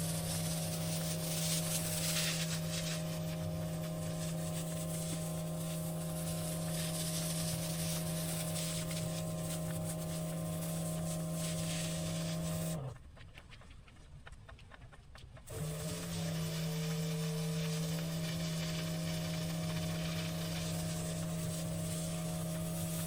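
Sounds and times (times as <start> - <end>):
pressure washer running: 0.0 - 12.9, 15.5 - 23.0
water spray hissing: 0.0 - 12.9, 15.5 - 23.0.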